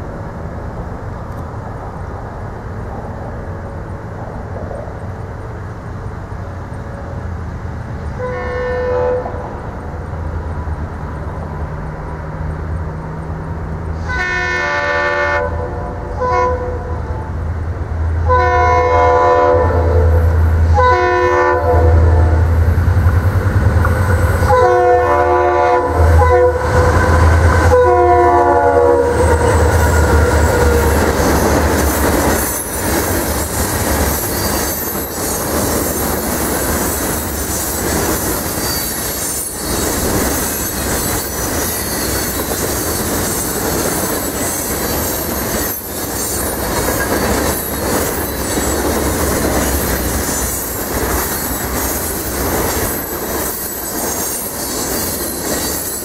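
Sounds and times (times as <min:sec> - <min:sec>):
train wheels clicking on rail joints: 0:00.0 - 0:08.2, 0:22.2 - 0:24.9, 0:29.0 - 0:56.0
locomotive horn blasts: 0:08.2 - 0:09.4, 0:14.0 - 0:17.1, 0:18.2 - 0:22.4, 0:24.4 - 0:30.6
train wheels squealing: 0:29.1 - 0:56.0.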